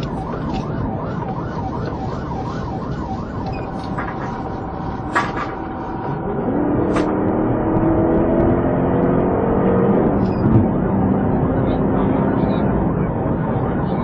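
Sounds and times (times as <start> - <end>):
engine and road noise: 0.0 - 14.0
police siren yelping: 0.0 - 14.0
engine revving: 6.1 - 12.8.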